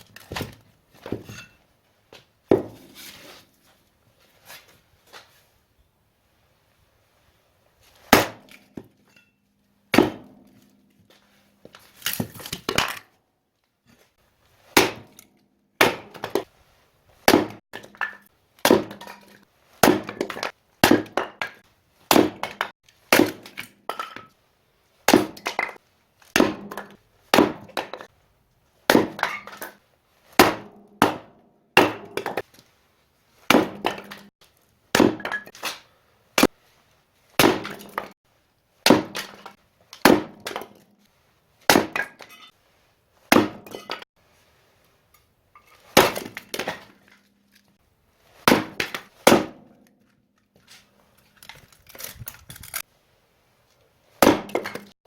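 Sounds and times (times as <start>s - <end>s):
axe splitting firewood: 0.0s - 1.6s, 2.5s - 3.5s, 8.0s - 9.3s, 9.9s - 13.2s, 14.7s - 16.5s, 17.2s - 24.3s, 25.1s - 28.1s, 28.9s - 32.6s, 33.4s - 34.3s, 34.9s - 36.6s, 37.4s - 38.2s, 38.8s - 40.9s, 41.6s - 42.5s, 43.3s - 44.0s, 45.6s - 47.7s, 48.3s - 52.8s, 54.2s - 55.0s.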